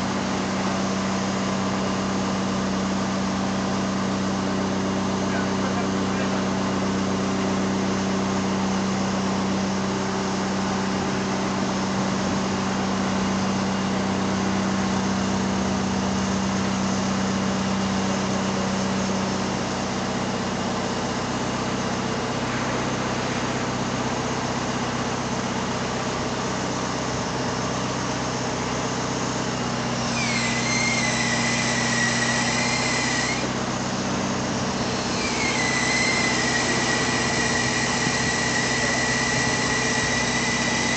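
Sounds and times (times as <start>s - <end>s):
crane truck engine humming: 0.0s - 40.9s
high wavering whine: 30.0s - 40.9s.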